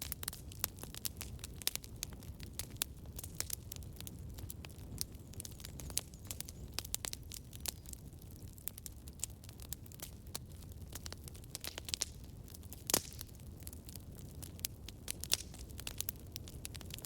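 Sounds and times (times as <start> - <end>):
campfire crackling and popping: 0.0 - 17.0
low rumble of burning fire: 0.0 - 17.0.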